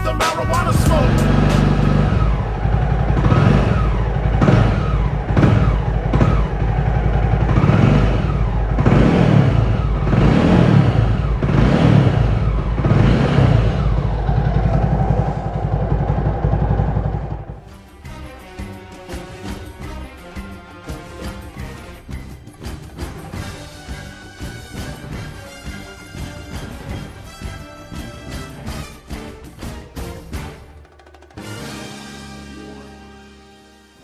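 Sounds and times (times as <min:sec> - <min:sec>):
motorcycle engine revving: 0:00.0 - 0:17.9.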